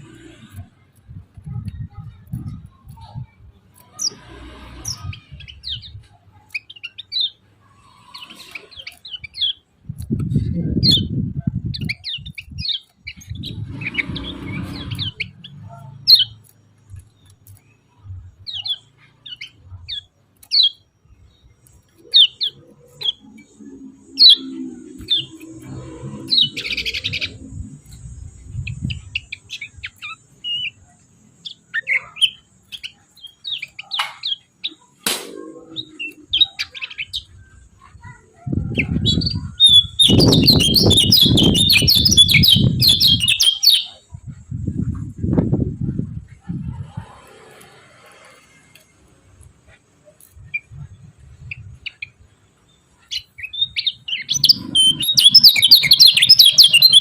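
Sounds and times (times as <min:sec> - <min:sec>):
bird sharp chirping calls: 0:01.6 - 0:44.2, 0:50.0 - 0:57.0
low rumbling noise: 0:13.1 - 0:17.1, 0:22.6 - 0:29.8.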